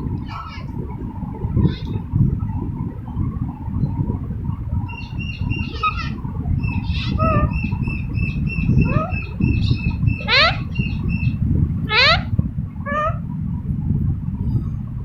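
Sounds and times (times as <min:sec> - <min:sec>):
low rumble: 0:00.0 - 0:15.0
parakeet chirping: 0:04.9 - 0:12.3, 0:12.9 - 0:13.2.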